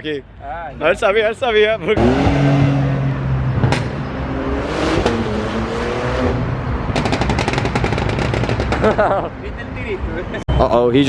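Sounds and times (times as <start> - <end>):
exhaust backfire pops: 3.6 - 4.1, 6.9 - 9.0.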